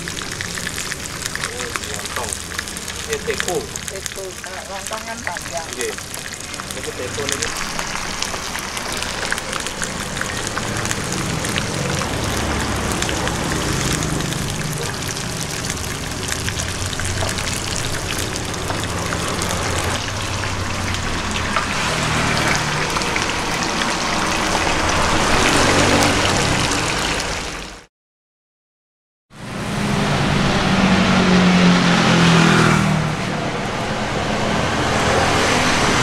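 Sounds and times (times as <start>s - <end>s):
tofu sizzling and crackling in oil: 0.0s - 27.6s.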